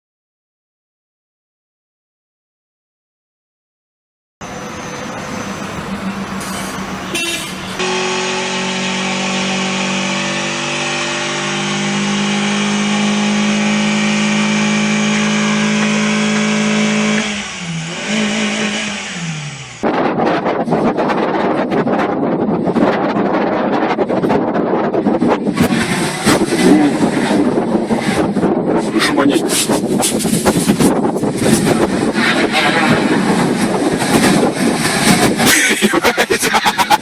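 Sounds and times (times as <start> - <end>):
car engine revving: 4.4 - 20.8, 25.0 - 37.0
road and vehicle noise: 4.4 - 37.0.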